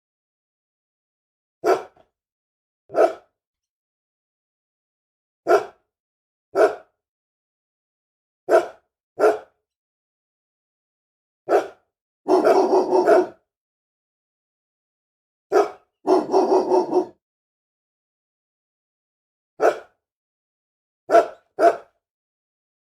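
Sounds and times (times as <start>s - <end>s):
angry dog barking: 1.6s - 2.0s, 2.9s - 3.3s, 5.5s - 5.8s, 6.6s - 6.9s, 8.5s - 9.6s, 11.5s - 13.4s, 15.5s - 17.2s, 19.6s - 20.0s, 21.1s - 22.0s.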